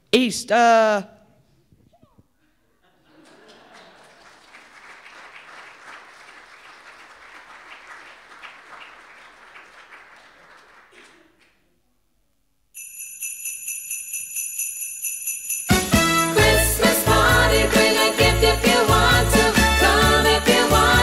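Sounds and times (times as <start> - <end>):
audience clapping: 3.5 - 11.6
festive holiday song with sleigh bells: 12.8 - 21.0.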